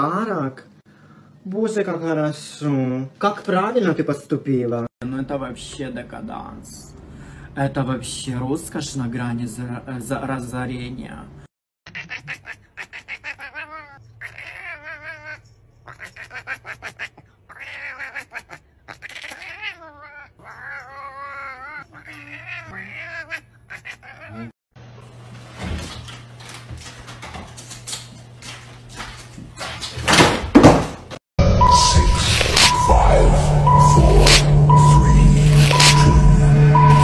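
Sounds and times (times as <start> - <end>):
cat yowling: 11.9 - 24.6.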